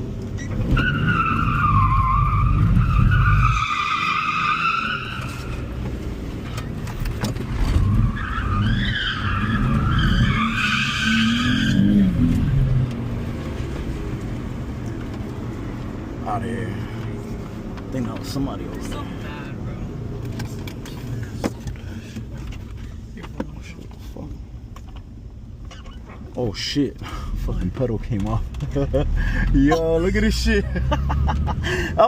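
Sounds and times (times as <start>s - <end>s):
tyres squealing: 0.4s - 5.8s, 7.6s - 12.3s, 25.6s - 26.3s.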